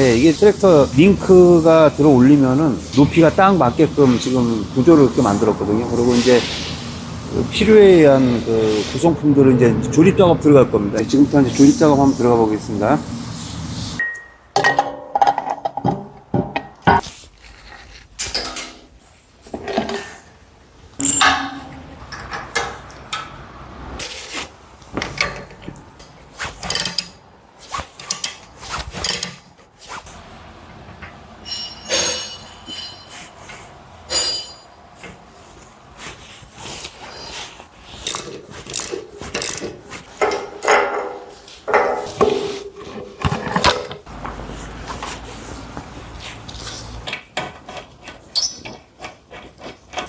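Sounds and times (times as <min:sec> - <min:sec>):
metal clanks of tools and parts: 0:14.0 - 0:17.1, 0:18.2 - 0:20.3, 0:21.0 - 0:23.4, 0:24.9 - 0:27.2, 0:27.8 - 0:29.7, 0:30.8 - 0:35.2, 0:38.0 - 0:44.1, 0:47.0 - 0:50.0.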